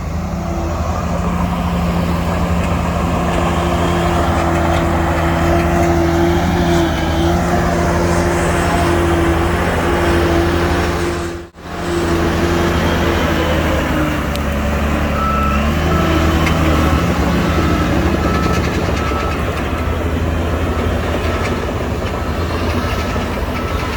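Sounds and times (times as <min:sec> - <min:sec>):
diesel engine of heavy machinery: 0:00.0 - 0:23.9
reversing alarm beeping: 0:14.9 - 0:23.9.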